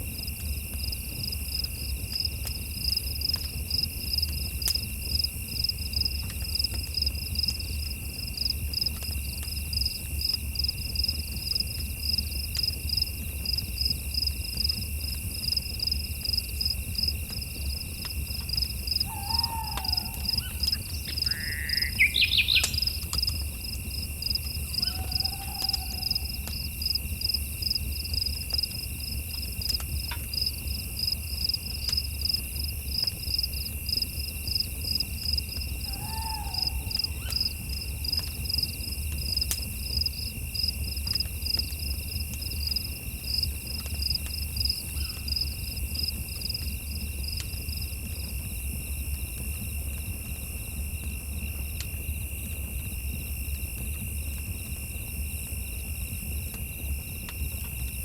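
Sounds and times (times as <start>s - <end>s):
insect chirping in rapid pulse: 15.4s - 40.8s.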